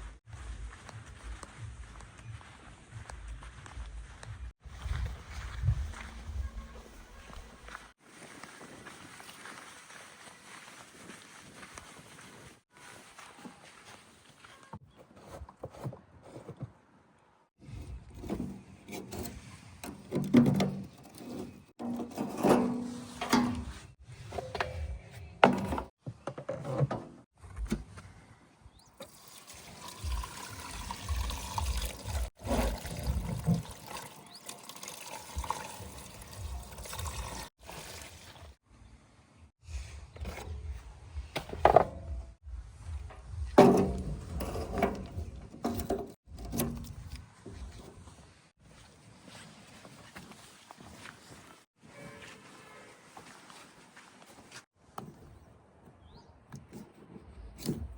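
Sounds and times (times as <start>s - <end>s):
mud pouring from bucket: 29.0s - 38.6s.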